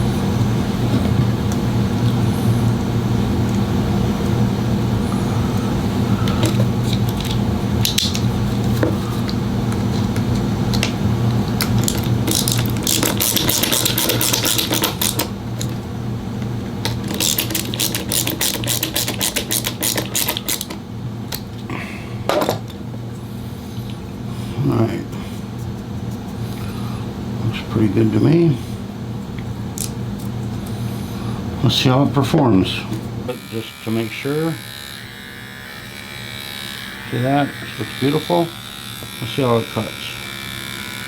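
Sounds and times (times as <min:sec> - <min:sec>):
motor hum: 0:33.0 - 0:41.0.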